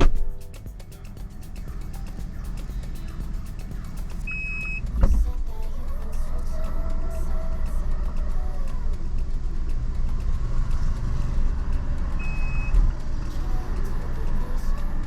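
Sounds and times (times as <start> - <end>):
car engine idling: 0.0 - 15.0
short high beep: 4.3 - 4.9, 12.2 - 12.8.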